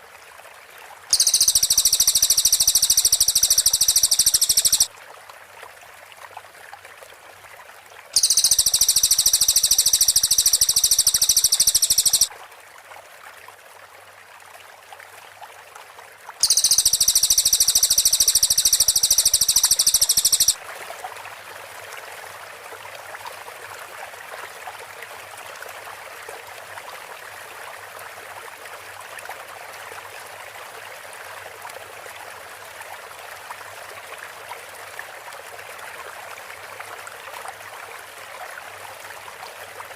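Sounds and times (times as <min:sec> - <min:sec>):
songbird high-pitched trill: 0:01.1 - 0:04.9, 0:08.2 - 0:12.3, 0:16.4 - 0:20.6
steady water-like hiss: 0:01.1 - 0:04.9, 0:08.2 - 0:12.3, 0:16.4 - 0:20.6.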